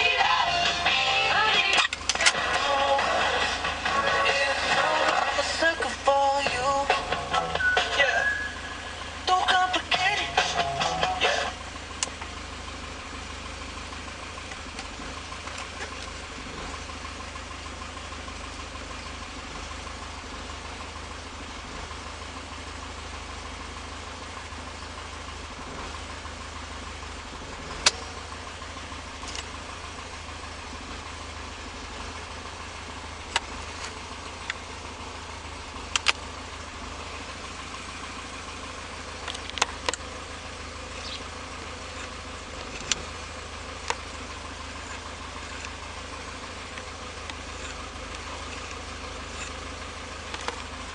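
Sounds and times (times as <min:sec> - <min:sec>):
car engine idling: 0:00.0 - 0:50.9
sharp clicks: 0:27.8 - 0:28.0, 0:35.9 - 0:36.2, 0:39.2 - 0:40.1, 0:41.9 - 0:43.1.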